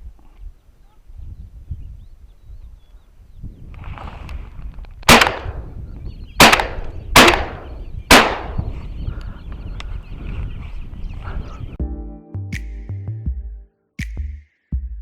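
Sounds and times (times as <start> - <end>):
shotgun shots with echo: 5.1 - 5.6, 6.4 - 8.7.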